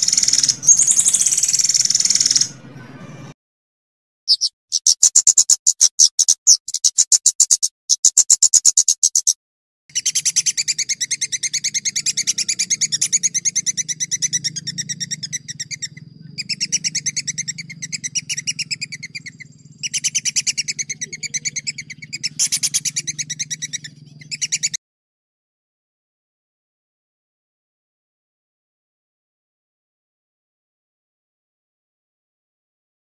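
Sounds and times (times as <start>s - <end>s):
songbird singing rapid rolls: 0.0s - 2.7s, 9.9s - 24.8s.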